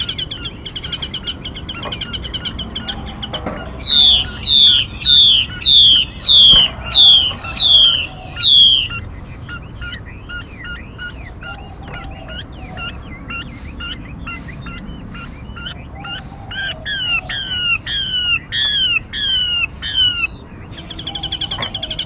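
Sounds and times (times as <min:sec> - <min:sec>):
bird chirping: 0:00.0 - 0:22.0
bird calls sweeping down in pitch: 0:03.8 - 0:09.0.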